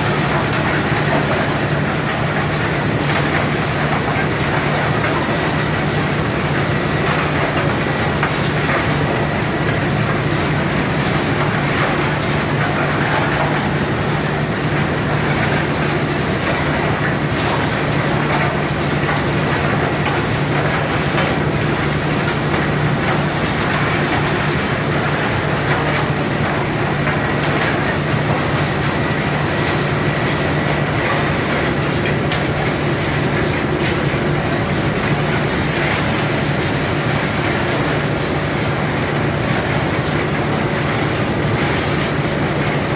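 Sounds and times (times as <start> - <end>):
low machine hum: 0.0 - 42.9.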